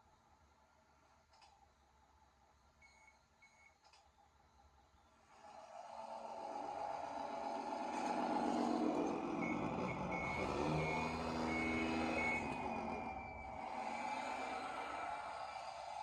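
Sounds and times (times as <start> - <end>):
reversing beeps: 2.8 - 3.8, 8.0 - 16.0
truck engine running: 5.7 - 16.0.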